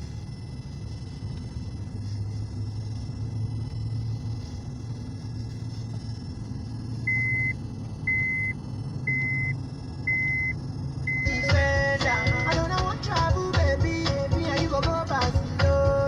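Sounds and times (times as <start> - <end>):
street traffic rumble: 0.0 - 16.0
high electronic beep: 7.0 - 12.6
music: 11.2 - 16.0.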